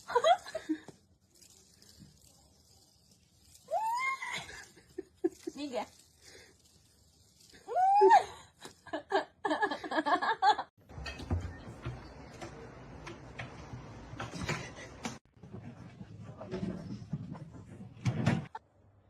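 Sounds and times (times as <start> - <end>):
rustling: 0.0 - 9.0.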